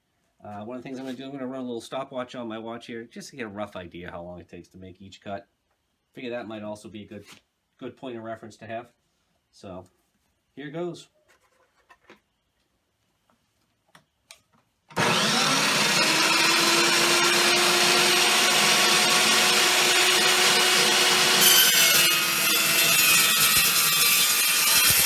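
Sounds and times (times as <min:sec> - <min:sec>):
chop saw cutting steel: 0:14.9 - 0:25.0.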